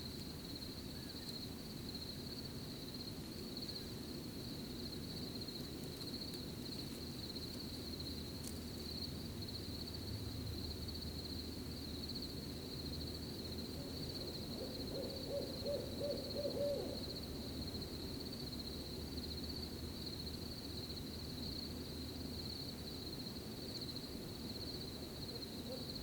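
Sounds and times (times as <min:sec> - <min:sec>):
cricket chirping trill: 0:00.0 - 0:26.0
owl hooting: 0:14.5 - 0:17.1.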